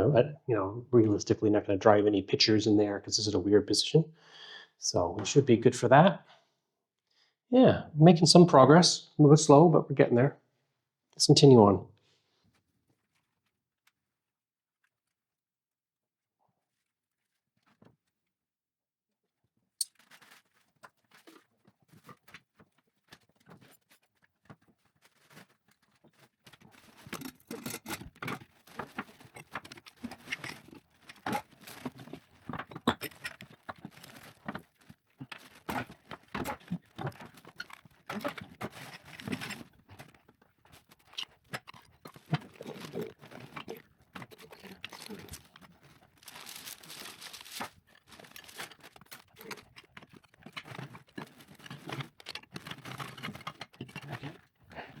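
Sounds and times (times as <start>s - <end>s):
objects knocking and rustling: 19.9s - 55.0s.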